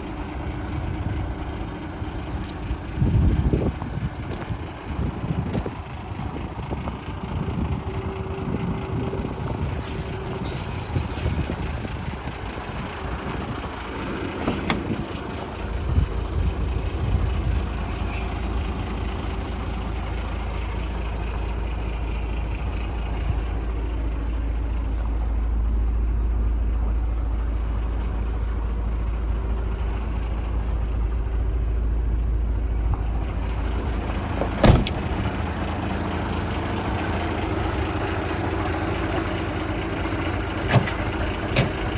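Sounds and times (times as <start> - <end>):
diesel truck engine rumbling: 0.0 - 41.9.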